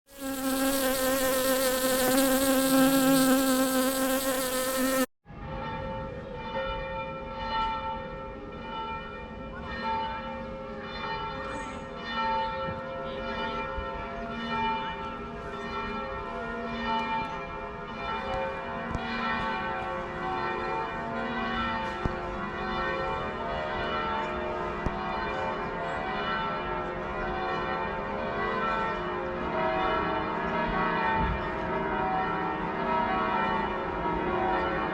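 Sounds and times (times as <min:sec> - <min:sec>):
loud wavering buzz: 0:00.1 - 0:05.1
church bells pealing: 0:05.5 - 0:34.9.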